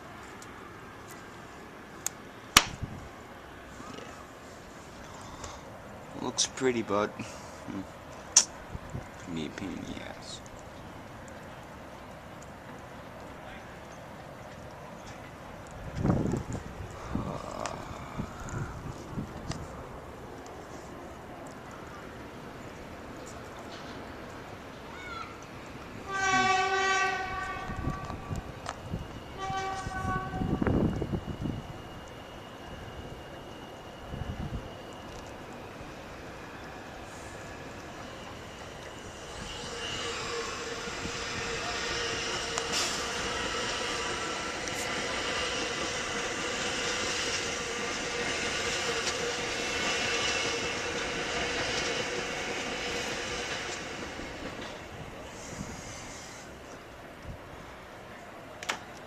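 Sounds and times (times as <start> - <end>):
horn blasts: 26.0 - 28.2, 29.4 - 30.7.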